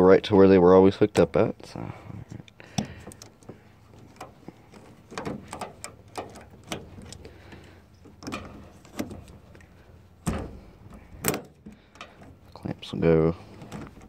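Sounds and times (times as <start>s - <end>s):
hose clamps clicking and knocking: 2.4s - 12.6s.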